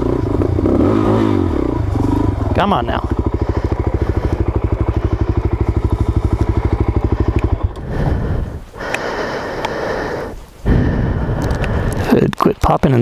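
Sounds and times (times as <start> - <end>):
motorcycle engine chugging and sputtering: 0.0 - 9.6.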